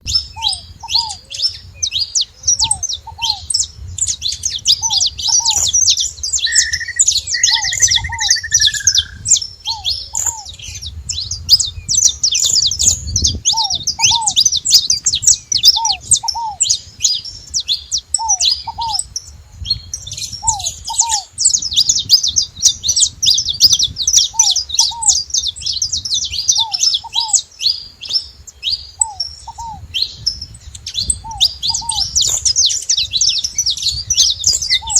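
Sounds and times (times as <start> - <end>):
finches chirping and singing: 0.0 - 34.9
lower pair of short bird notes: 6.3 - 10.5
falling whistle: 6.5 - 9.2.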